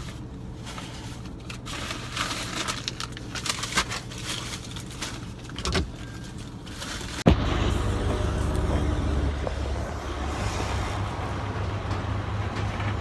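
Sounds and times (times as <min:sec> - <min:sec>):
car engine hum: 0:03.0 - 0:13.0
loud low rumble: 0:07.3 - 0:13.0.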